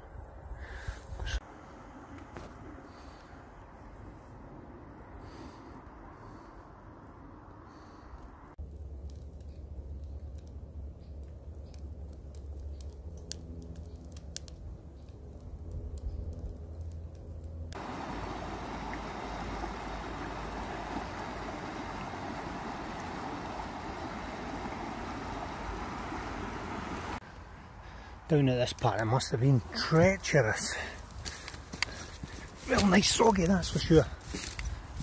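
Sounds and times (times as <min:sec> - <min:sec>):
floodwater rushing: 0:17.8 - 0:27.2, 0:29.6 - 0:34.0
wind buffeting microphone: 0:17.8 - 0:27.2, 0:33.9 - 0:35.0.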